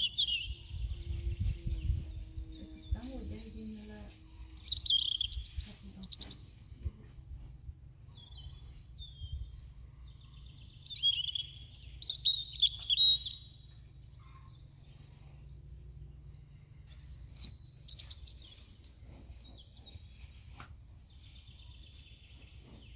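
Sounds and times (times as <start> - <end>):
low steady rumble: 0.0 - 4.9, 13.6 - 17.9
small bird singing: 0.0 - 6.8, 8.0 - 22.9.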